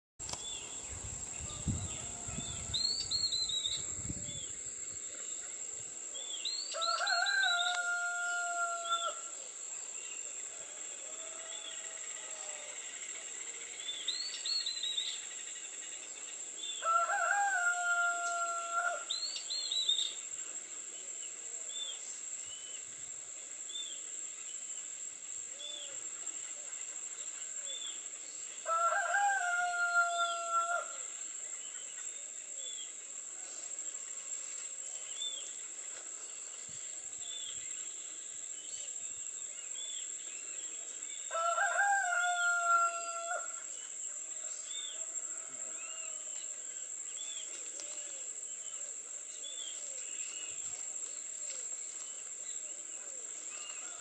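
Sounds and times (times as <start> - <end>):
high insect buzz: 0.2 - 5.9.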